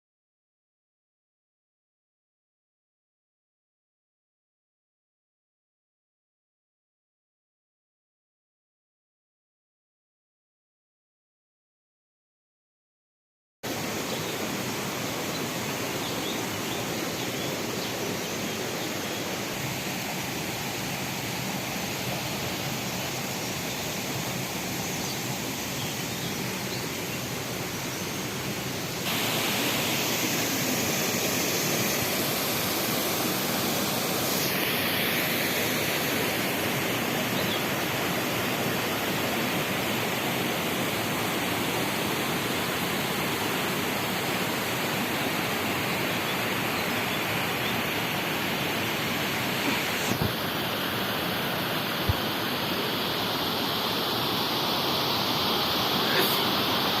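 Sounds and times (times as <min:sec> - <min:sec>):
water rushing over cascades: 0:13.7 - 0:57.0.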